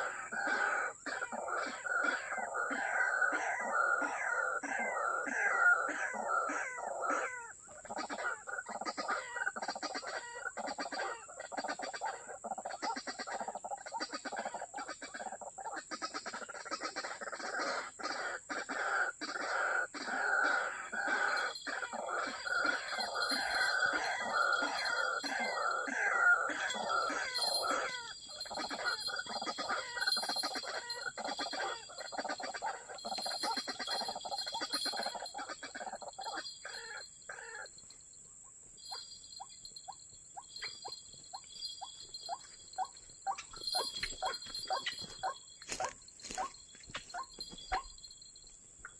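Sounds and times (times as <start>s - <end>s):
waterhen croaking and clucking: 0.0s - 37.8s.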